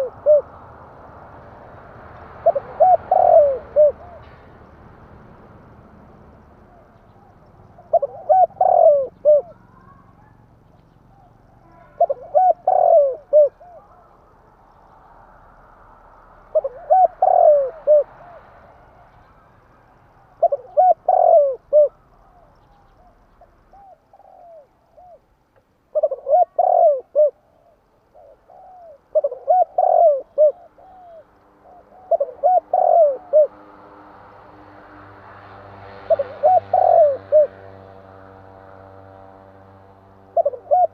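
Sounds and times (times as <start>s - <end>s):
dove cooing: 0.0s - 0.6s, 2.4s - 4.4s, 6.7s - 10.4s, 11.1s - 14.5s, 16.4s - 19.2s, 20.2s - 25.3s, 25.9s - 33.8s, 36.0s - 37.9s, 40.2s - 40.9s.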